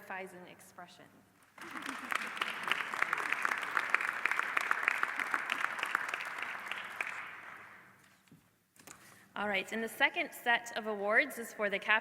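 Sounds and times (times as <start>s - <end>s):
audience applauding: 1.5s - 7.8s.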